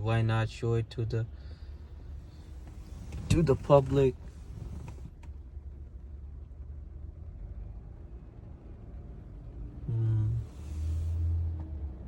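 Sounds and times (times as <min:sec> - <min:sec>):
street traffic rumble: 0:00.9 - 0:12.0
vehicle passing with tyre hiss: 0:09.9 - 0:11.6.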